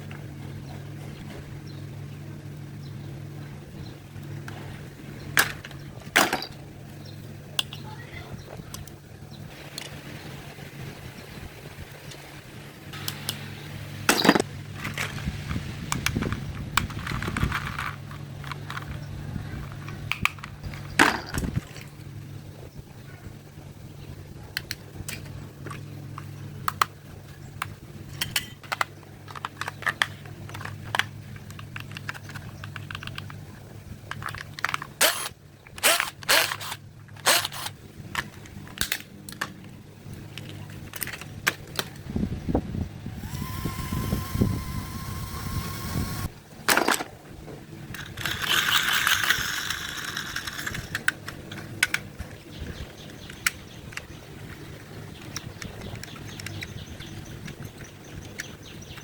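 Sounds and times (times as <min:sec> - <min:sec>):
steady low hum: 0:00.0 - 0:59.0
clicks of plastic toys handled: 0:15.9 - 0:21.9, 0:27.6 - 0:33.4.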